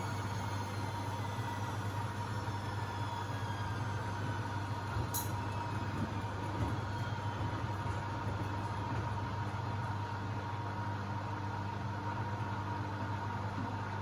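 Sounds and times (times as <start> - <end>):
motor whine: 0.0 - 9.9
washing machine drum rumble: 0.0 - 10.3.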